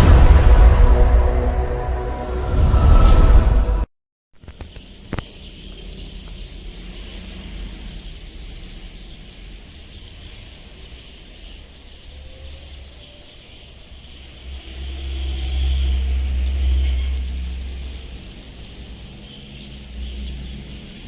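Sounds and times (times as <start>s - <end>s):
low rumble: 0.0s - 3.9s, 14.3s - 19.2s.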